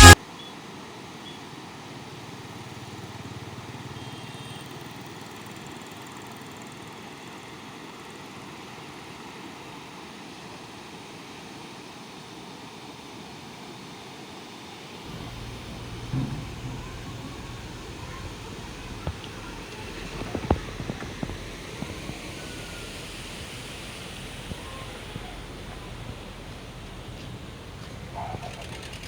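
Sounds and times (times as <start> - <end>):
truck road and engine noise: 15.1 - 29.0.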